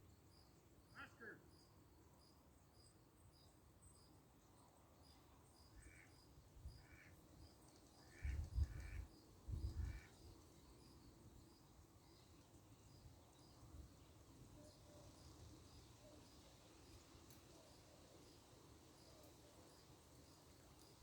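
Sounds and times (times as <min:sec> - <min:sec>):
faint insect chirping: 0:00.0 - 0:21.0.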